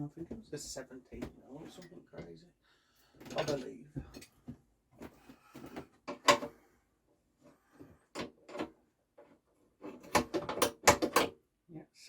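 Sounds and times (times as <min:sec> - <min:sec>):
hand tools clicking and clacking: 0:09.9 - 0:11.3.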